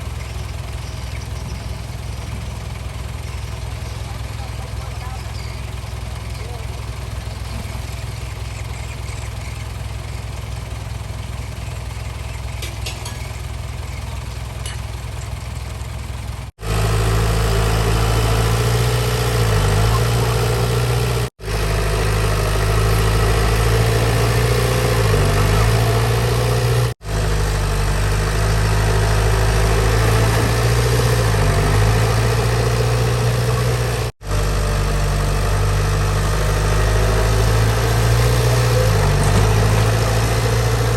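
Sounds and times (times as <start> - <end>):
heavy diesel engine running: 0.0 - 40.9.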